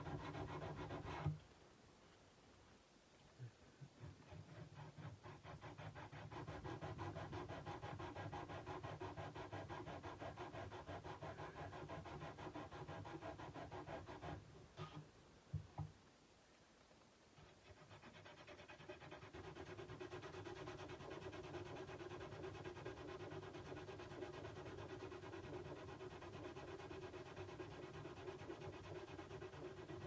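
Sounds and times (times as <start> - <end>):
sandpaper rubbing on metal blade: 4.4 - 14.4.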